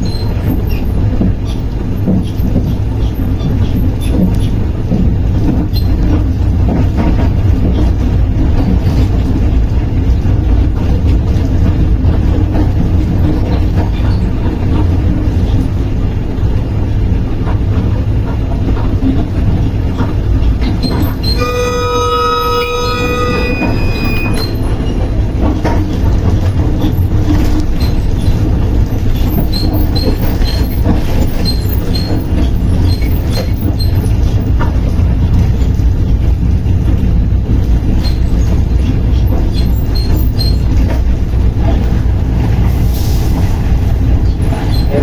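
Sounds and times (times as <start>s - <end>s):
rail clicks: 0.0s - 45.0s
train rumbling: 0.0s - 45.0s
train horn blast: 21.1s - 25.0s.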